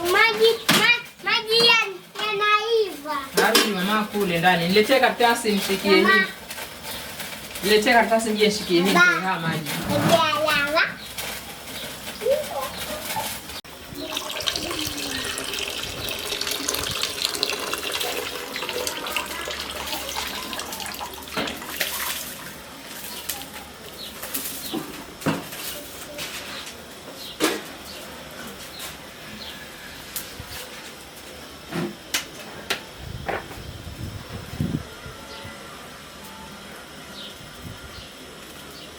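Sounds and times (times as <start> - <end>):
water splashing from pot: 14.0 - 23.4.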